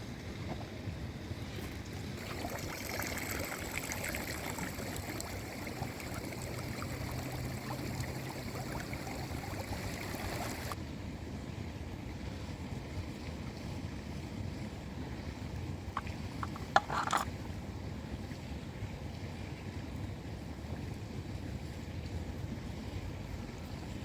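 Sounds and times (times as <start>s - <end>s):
fish sizzling in hot oil: 2.2s - 10.8s.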